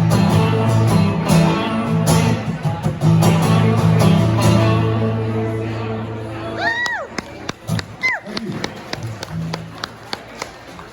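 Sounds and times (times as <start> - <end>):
guitar strumming chords: 0.0 - 6.6.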